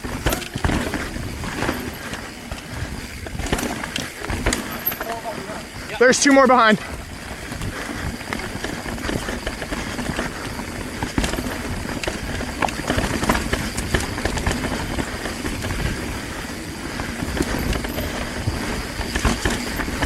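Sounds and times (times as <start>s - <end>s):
bike rattling knocks: 0.0s - 5.9s, 6.5s - 20.0s
tyres rumbling over rocks: 0.0s - 20.0s.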